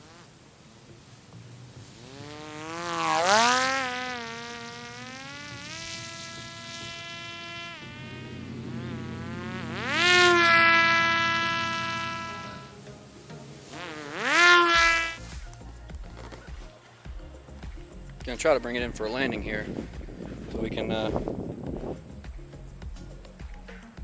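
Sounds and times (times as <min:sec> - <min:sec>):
electric propeller buzzing: 0:00.0 - 0:15.3.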